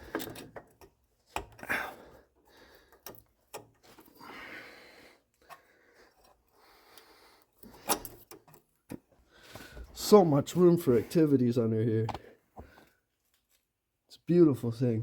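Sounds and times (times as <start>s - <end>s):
hands handling car parts: 0.0s - 4.2s, 5.2s - 11.3s.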